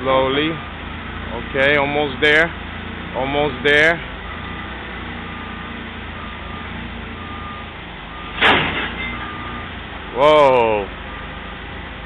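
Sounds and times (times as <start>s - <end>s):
heavy vehicle engine running: 0.0s - 12.0s
loud sharp noise: 8.4s - 9.0s.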